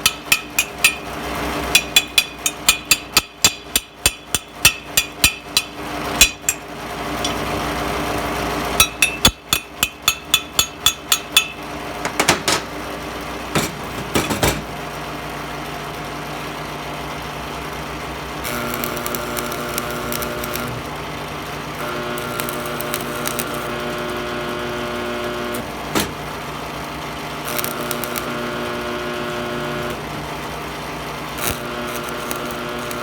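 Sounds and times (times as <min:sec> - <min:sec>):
metal clinks: 0:00.0 - 0:01.1, 0:01.7 - 0:07.5, 0:08.8 - 0:11.6
hammer striking metal: 0:00.0 - 0:07.6, 0:08.8 - 0:12.8
steady hum: 0:00.0 - 0:12.8.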